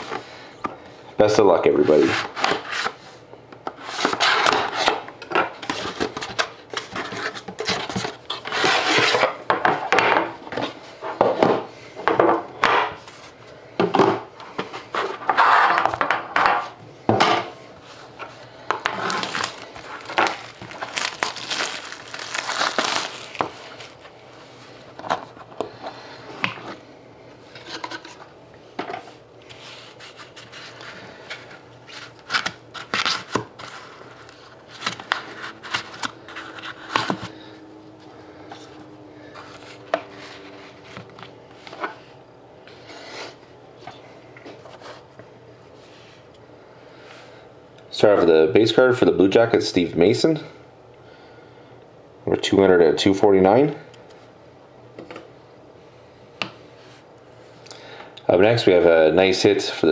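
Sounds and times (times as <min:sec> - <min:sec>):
cards scraping: 0:18.0 - 0:24.0
wrapper crinkling and rustling: 0:18.9 - 0:24.1.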